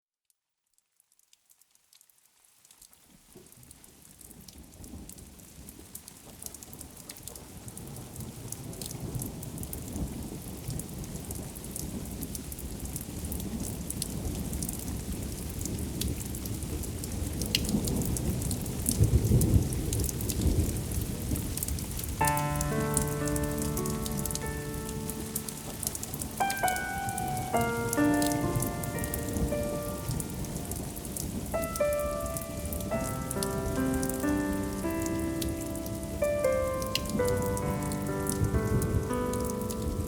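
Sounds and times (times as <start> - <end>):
heavy rain: 3.4 - 40.0
low rumble of thunder: 13.2 - 40.0
raindrops ticking: 21.6 - 40.0.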